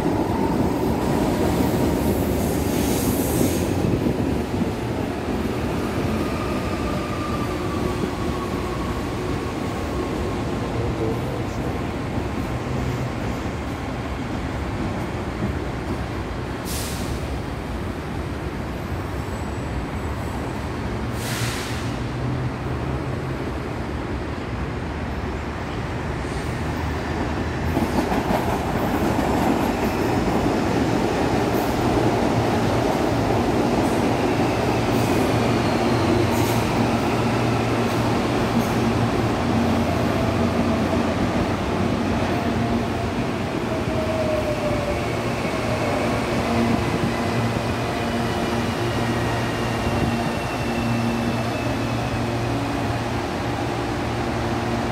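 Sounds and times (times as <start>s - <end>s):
train wheels rumbling on rails: 26.1s - 54.9s.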